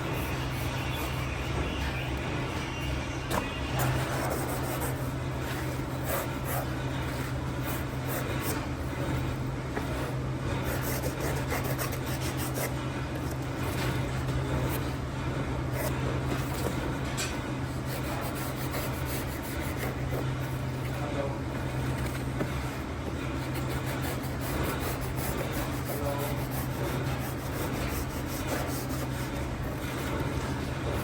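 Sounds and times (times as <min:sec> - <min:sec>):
low machine hum: 0:00.0 - 0:31.0.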